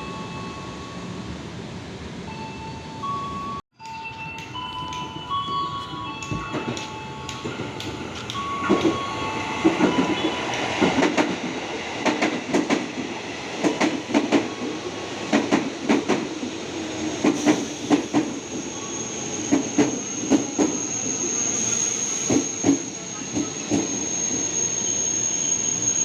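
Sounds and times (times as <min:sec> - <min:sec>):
chime melody: 0:02.3 - 0:10.4
train wheels clacking over rail joints: 0:09.6 - 0:14.5, 0:15.3 - 0:16.5, 0:17.2 - 0:18.4
high steady squeal: 0:17.6 - 0:26.0.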